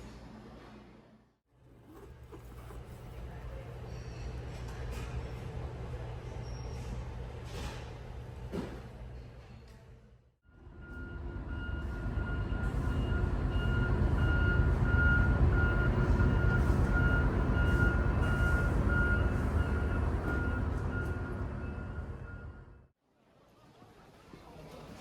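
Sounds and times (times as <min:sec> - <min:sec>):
reversing alarm beeping: 0:10.5 - 0:22.9.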